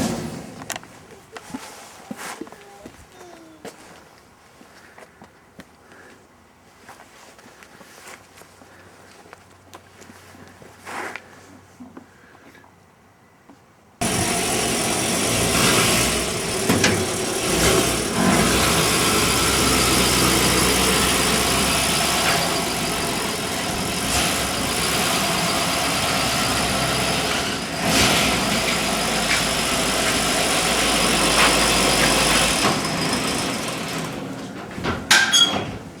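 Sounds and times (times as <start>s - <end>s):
truck engine running: 14.0s - 36.0s.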